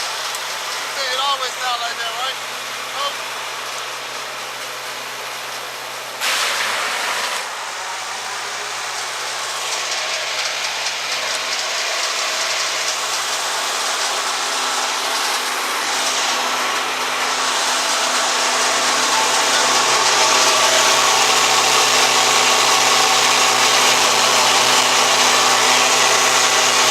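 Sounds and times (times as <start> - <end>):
wood chipper engine running: 0.0 - 26.9
loud noisy burst: 6.2 - 9.6.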